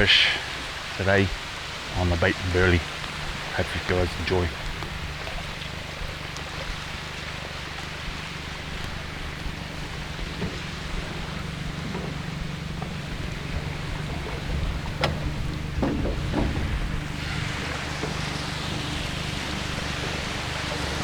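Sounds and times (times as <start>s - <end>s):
steady low hum: 0.0s - 21.0s
water noise: 0.0s - 21.0s
wind: 0.0s - 21.0s
sharp knocks: 10.3s - 20.3s.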